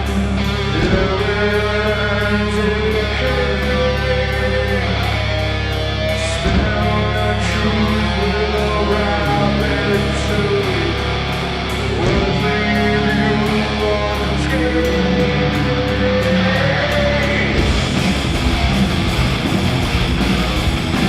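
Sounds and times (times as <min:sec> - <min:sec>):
bass: 0:00.0 - 0:21.0
distorted electric guitars: 0:00.0 - 0:21.0.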